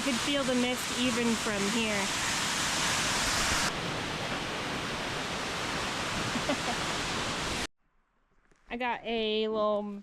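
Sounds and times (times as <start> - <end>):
waterfall roaring: 0.0 - 7.7.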